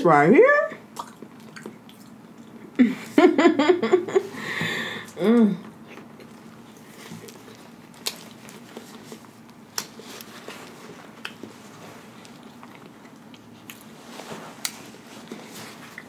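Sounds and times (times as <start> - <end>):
person chewing food: 0.9 - 2.8, 5.6 - 16.0.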